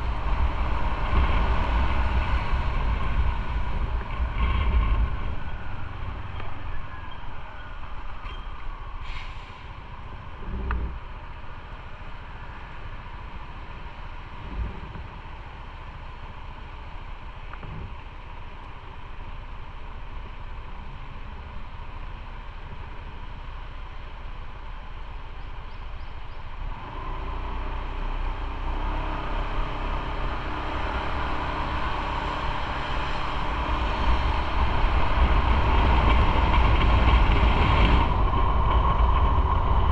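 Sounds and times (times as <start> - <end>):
wind noise on microphone: 0.0 - 11.7, 12.3 - 16.1, 17.5 - 18.2, 29.0 - 39.9
motorcycle engine and road rumble: 0.0 - 39.9.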